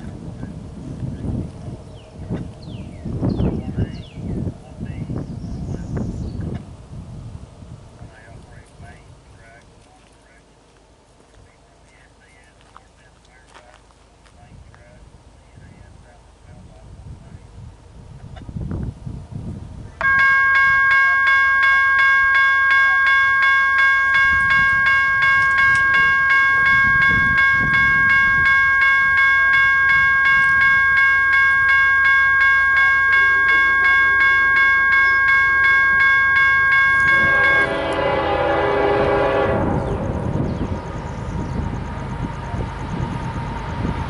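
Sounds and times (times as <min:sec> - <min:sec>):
locomotive horn: 0:20.0 - 0:40.4
crossing warning bell ringing: 0:20.0 - 0:44.0.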